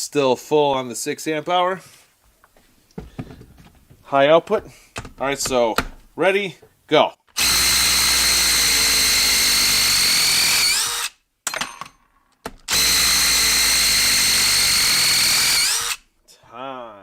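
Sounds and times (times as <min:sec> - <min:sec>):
impact driver hammering screws: 0:07.3 - 0:16.0.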